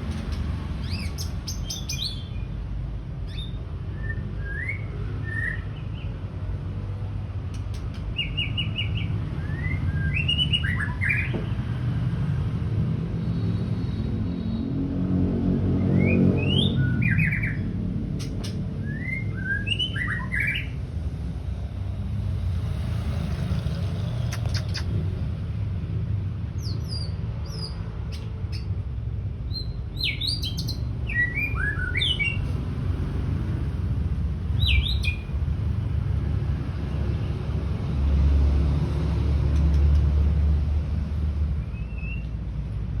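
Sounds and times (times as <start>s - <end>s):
bird chirps and whistles: 3.3s - 5.9s, 8.2s - 11.3s, 16.0s - 17.6s, 18.8s - 20.8s, 29.5s - 32.5s, 34.6s - 35.3s, 41.7s - 42.3s.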